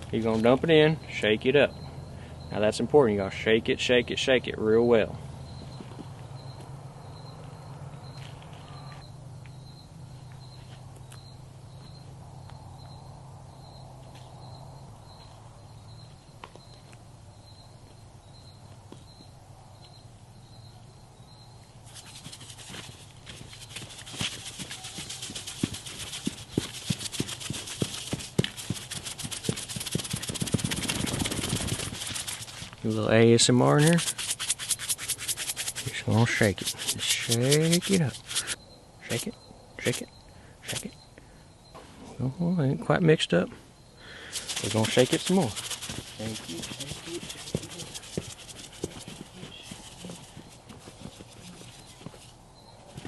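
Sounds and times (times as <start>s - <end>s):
insect chirping: 5.4s - 32.8s, 33.7s - 41.8s, 43.8s - 53.0s
powder shaken in a jar: 21.9s - 32.8s, 33.7s - 39.2s, 44.3s - 52.3s.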